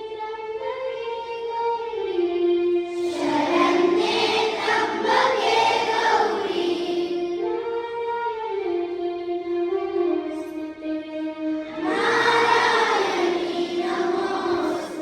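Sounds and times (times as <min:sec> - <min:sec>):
children singing: 0:02.9 - 0:07.5, 0:11.7 - 0:15.0.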